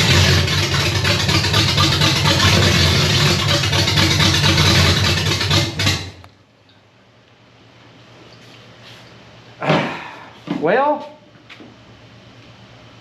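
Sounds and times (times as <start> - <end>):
car engine running: 0.0 - 6.3.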